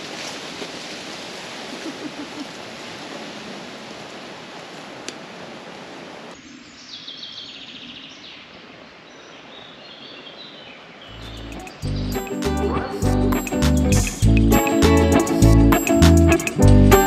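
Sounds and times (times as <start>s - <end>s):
rushing outdoor noise: 0.0s - 6.9s
birds chirping: 6.3s - 17.0s.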